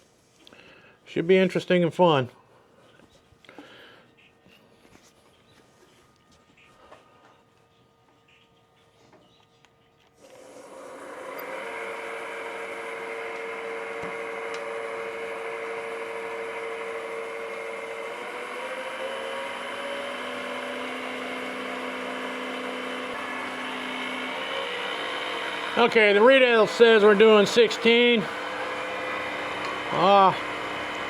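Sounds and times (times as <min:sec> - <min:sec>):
wood lathe motor hum and whine: 0:10.2 - 0:31.0.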